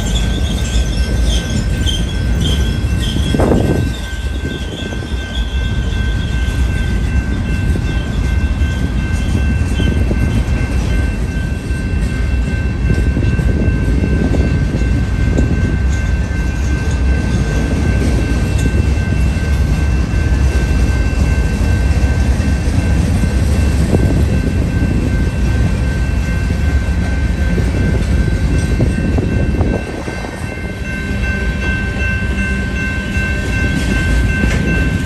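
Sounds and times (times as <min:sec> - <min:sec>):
wheel squeal: 0:00.0 - 0:06.6
freight train rumbling: 0:00.0 - 0:35.0.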